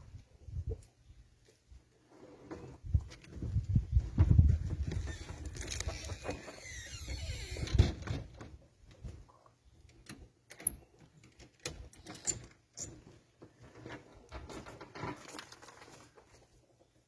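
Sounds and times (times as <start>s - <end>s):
clicks and knocks of wood and tools: 4.2s - 6.4s, 7.8s - 16.4s.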